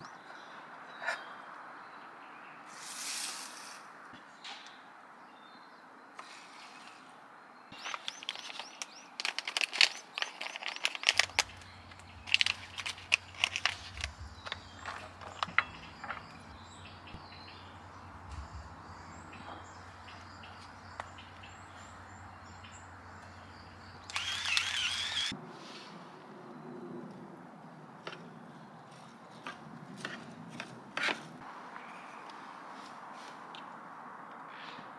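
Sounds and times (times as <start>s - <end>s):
small birds chirping: 0.0s - 25.4s.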